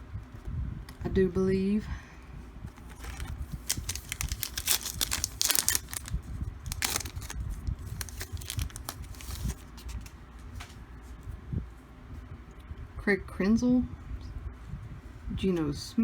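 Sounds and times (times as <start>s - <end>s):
card pack wrapper tearing: 2.7s - 10.0s
wrapper crinkling and rustling: 2.7s - 10.2s.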